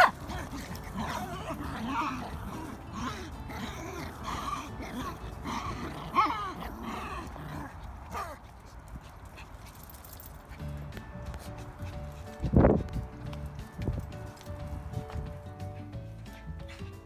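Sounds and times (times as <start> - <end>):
dogs whining and yipping: 0.0 - 8.6.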